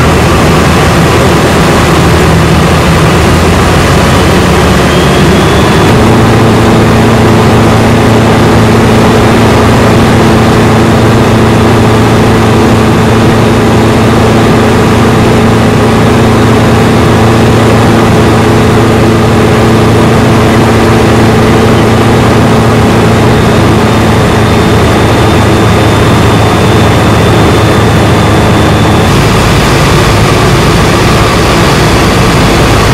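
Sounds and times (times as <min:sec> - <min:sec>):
microlight engine and propeller: 0:00.0 - 0:32.9.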